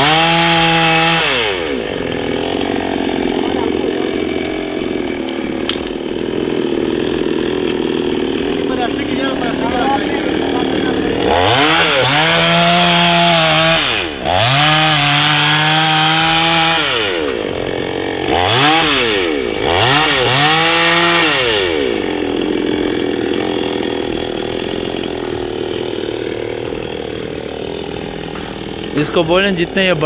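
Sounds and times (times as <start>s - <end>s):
chainsaw revving and idling: 0.0s - 30.0s.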